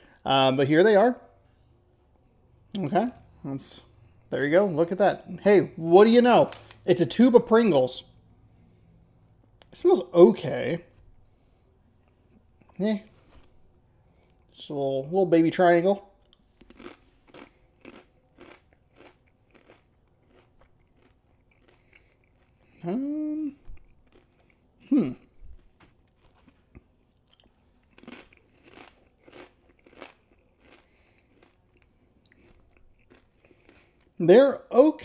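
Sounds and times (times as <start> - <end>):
crunching tortilla chips: 16.2 - 22.9, 23.8 - 34.2
person humming: 22.8 - 23.7, 24.8 - 25.2.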